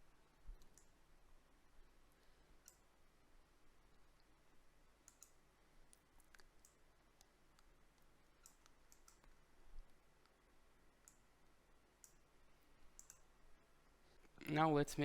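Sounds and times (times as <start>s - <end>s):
computer keyboard or mouse clicks: 0.6s - 1.0s, 5.0s - 10.4s, 12.9s - 13.3s.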